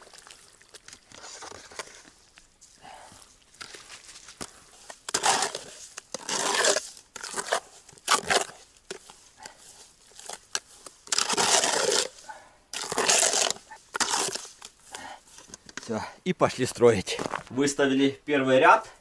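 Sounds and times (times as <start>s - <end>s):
mortar stirred in a bucket: 4.7s - 15.6s.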